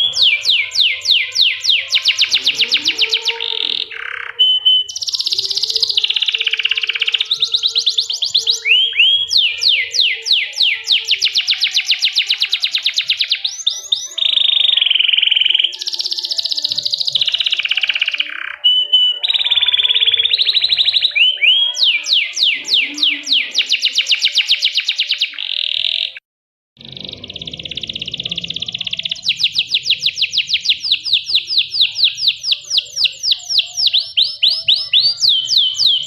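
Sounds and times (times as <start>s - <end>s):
canary singing trills: 0.0s - 26.2s, 26.8s - 36.0s.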